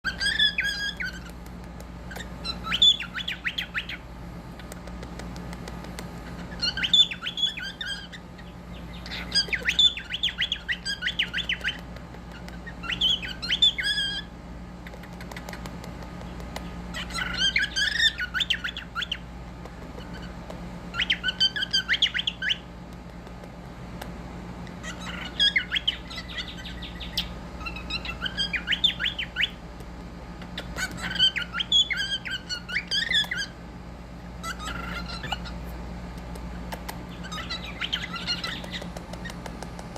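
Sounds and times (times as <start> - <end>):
parrot squawking: 0.0 - 1.4, 2.1 - 4.0, 6.2 - 15.5, 16.9 - 19.3, 20.0 - 22.7, 24.8 - 29.6, 30.4 - 33.6, 34.4 - 35.7, 37.1 - 39.5.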